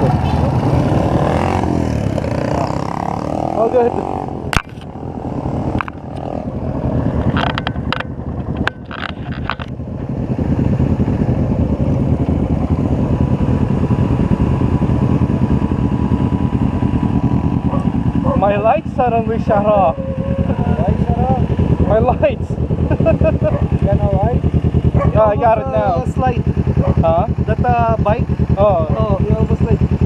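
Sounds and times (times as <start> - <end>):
motorcycle engine running: 0.0 - 30.0
road and wind noise: 0.0 - 30.0.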